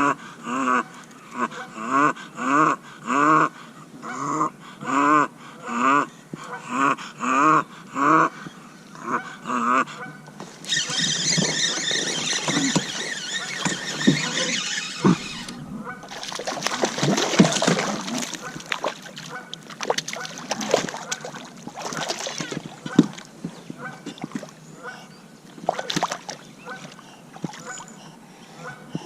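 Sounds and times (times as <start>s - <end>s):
animal calling: 7.4s - 18.7s.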